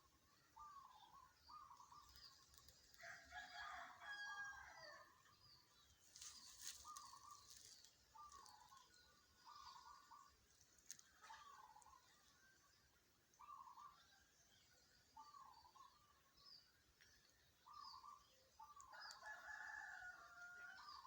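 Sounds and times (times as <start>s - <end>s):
birds chirping: 0.0s - 4.7s, 5.4s - 21.0s
rooster crowing: 3.0s - 5.1s, 19.2s - 21.0s.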